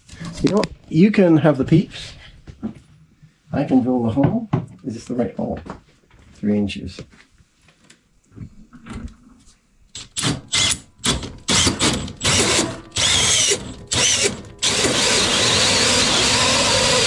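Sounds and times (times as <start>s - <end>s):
power drill cutting wood: 10.2s - 17.0s.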